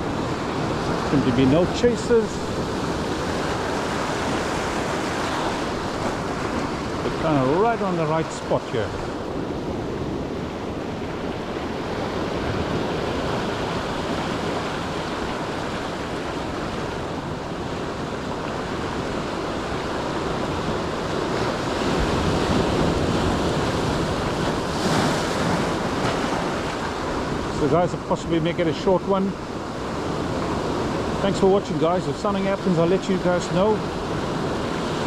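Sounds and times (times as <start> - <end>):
wind on microphone: 0.0 - 27.6
ocean surf breaking: 0.0 - 35.0.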